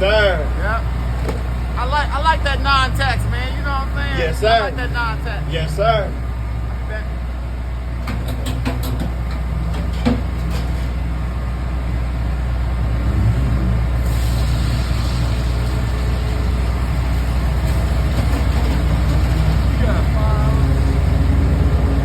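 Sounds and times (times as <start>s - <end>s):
low engine hum: 0.0s - 22.0s
sharp clicks and knocks: 8.0s - 10.8s.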